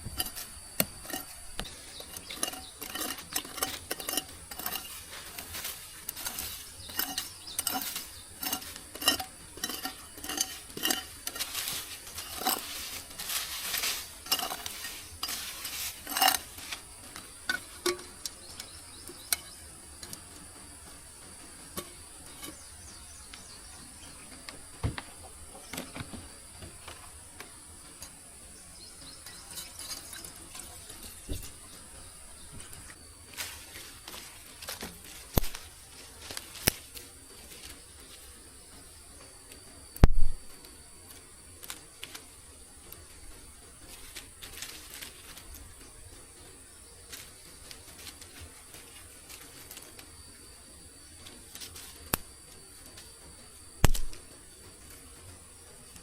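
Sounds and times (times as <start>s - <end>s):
metal utensil clinking pot: 0.2s - 20.5s.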